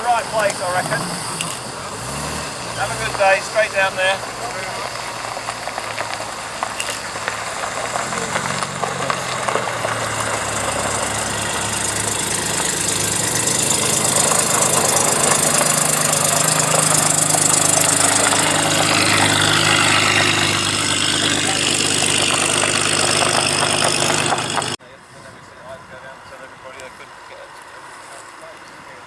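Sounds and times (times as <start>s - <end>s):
car engine running: 0.0s - 24.8s.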